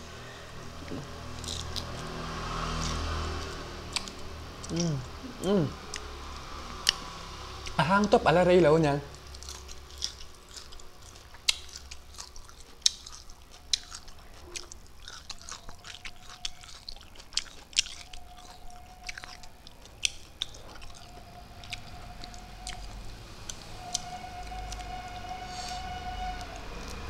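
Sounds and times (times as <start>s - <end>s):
person chewing and crunching: 0.8s - 8.4s, 9.1s - 24.0s
faint high tone: 21.0s - 27.0s.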